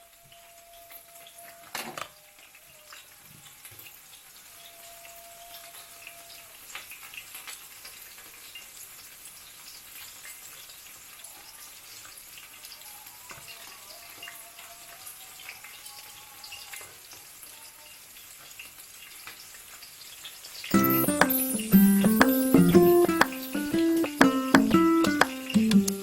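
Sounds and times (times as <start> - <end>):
food sizzling in a pan: 6.6 - 25.6
small pops of frying food: 20.7 - 26.0.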